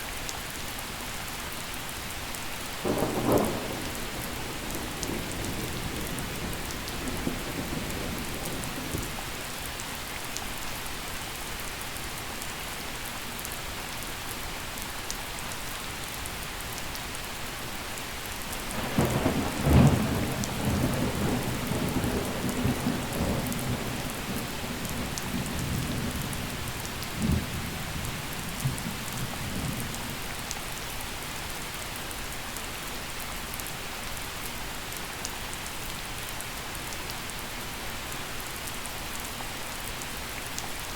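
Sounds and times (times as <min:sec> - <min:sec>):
gentle rain falling: 0:00.0 - 0:40.9
thunder crack and rumble: 0:02.8 - 0:09.2, 0:18.6 - 0:30.2.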